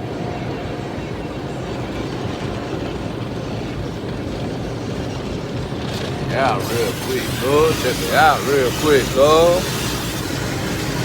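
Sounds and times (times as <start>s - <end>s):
car wash machinery rushing: 1.2s - 11.0s.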